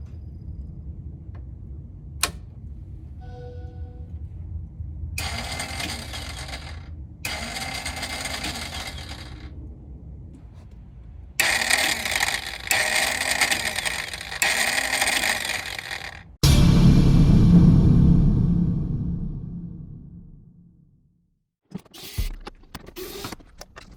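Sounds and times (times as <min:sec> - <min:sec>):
click: 0:02.2 - 0:02.4
electric starter whirring: 0:05.2 - 0:09.6, 0:10.4 - 0:16.4
loud low sound: 0:16.4 - 0:21.3.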